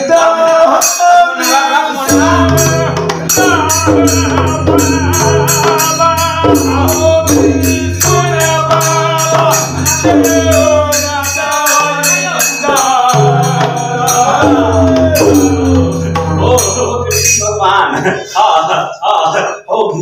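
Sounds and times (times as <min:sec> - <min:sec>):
hand cymbals striking: 0:00.0 - 0:18.2
man singing devotional song: 0:00.0 - 0:19.9
drum beat: 0:02.1 - 0:17.9.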